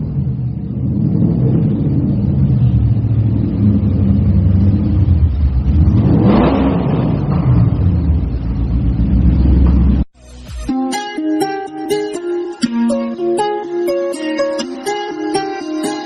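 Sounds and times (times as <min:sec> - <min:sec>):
car engine running and revving: 0:00.0 - 0:10.1.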